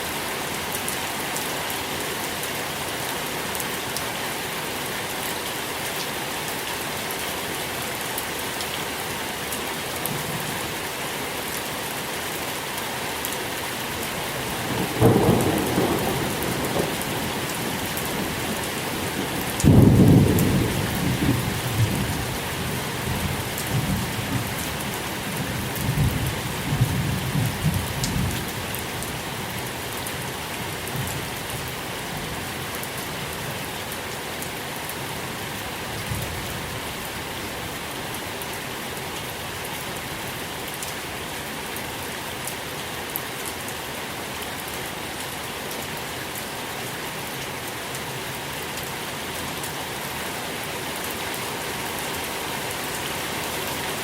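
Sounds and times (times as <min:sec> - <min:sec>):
steady rain falling: 0:00.0 - 0:54.0
low roll of thunder: 0:14.6 - 0:18.5, 0:19.6 - 0:22.2.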